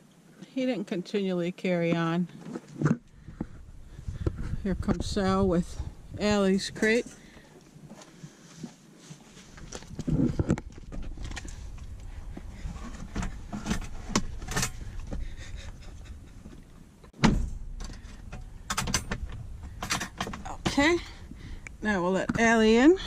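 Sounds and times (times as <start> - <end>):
steady low rumble: 3.0 - 7.9, 9.4 - 23.0
pet carrier clicking and rattling: 12.8 - 15.3, 17.8 - 21.0
loud thump: 17.2 - 18.1.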